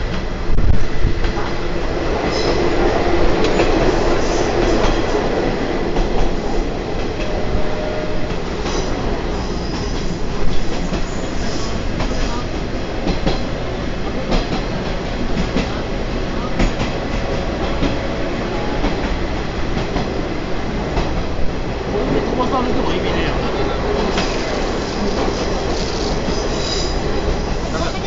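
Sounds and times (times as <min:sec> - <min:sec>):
train wheels rumbling on rails: 0:00.0 - 0:28.0
faint squeal: 0:24.3 - 0:27.0.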